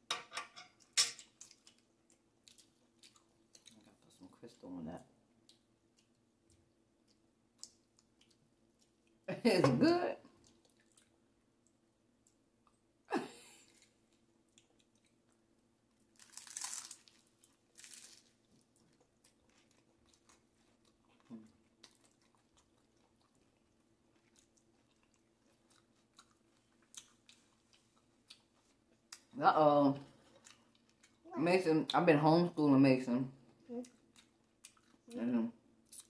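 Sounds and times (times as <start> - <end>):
close chewing: 1.2 - 4.2, 10.3 - 12.8, 16.2 - 29.3, 33.6 - 35.2
crunching taco shells: 13.7 - 29.3.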